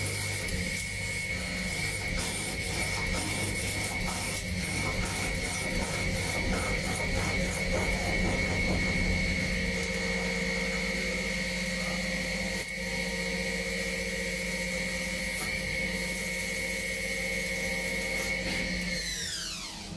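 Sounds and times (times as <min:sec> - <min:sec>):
high-pitched spindle motor whine: 0:00.0 - 0:19.9
low mechanical hum: 0:00.0 - 0:19.9.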